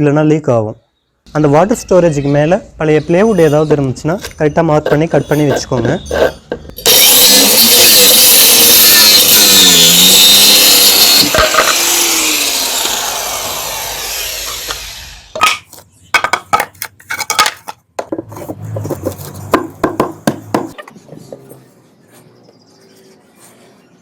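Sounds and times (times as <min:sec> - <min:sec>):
power saw cutting wood: 0:06.8 - 0:15.5
wood clattering: 0:14.5 - 0:21.0.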